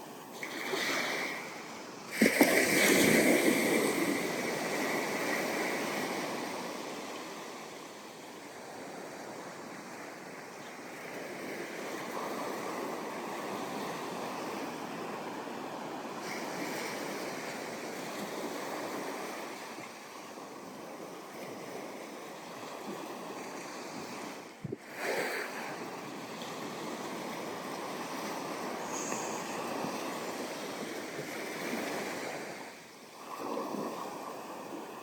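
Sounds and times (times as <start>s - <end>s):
surf breaking on beach: 24.6s - 34.4s.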